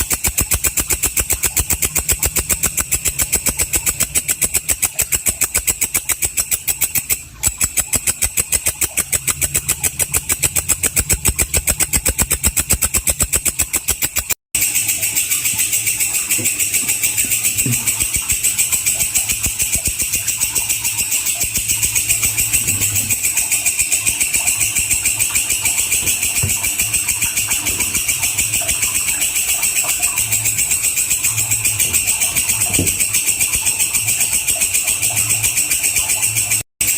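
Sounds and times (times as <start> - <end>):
insect calling in harsh pulses: 0.0 - 36.6
katydid rasping buzz: 0.0 - 36.6.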